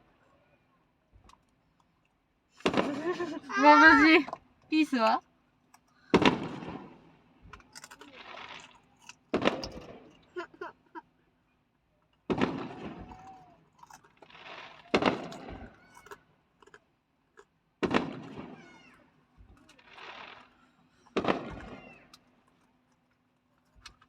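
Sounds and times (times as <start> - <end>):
fireworks booms: 2.6 - 4.1, 6.2 - 7.1, 12.3 - 13.3, 14.3 - 15.8, 17.8 - 18.9, 21.2 - 22.1.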